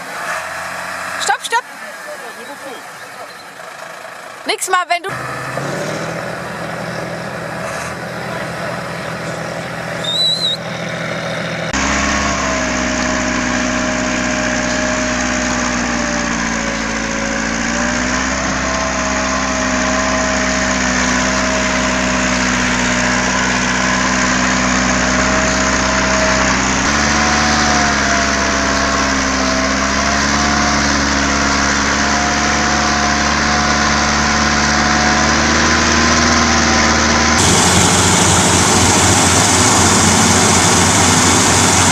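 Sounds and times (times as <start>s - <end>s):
heavy machinery engine running: 0.0s - 41.9s
high chirp: 9.3s - 11.7s.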